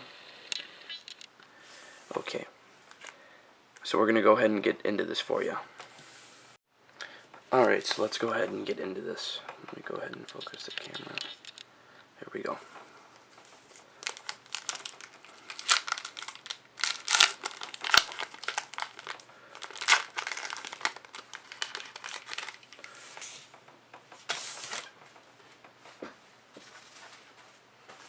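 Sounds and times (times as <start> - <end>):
card pack wrapper crinkling: 13.7 - 23.0.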